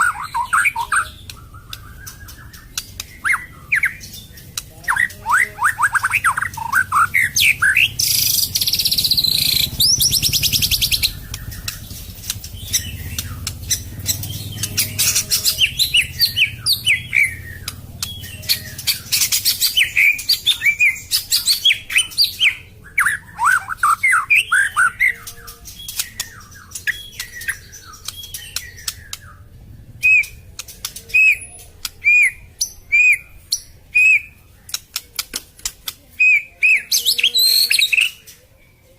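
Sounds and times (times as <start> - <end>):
harsh rattling bird trill: 0.0 - 38.3
bird singing whistled phrases: 4.9 - 11.9, 14.4 - 30.4, 31.1 - 34.4, 36.2 - 38.2.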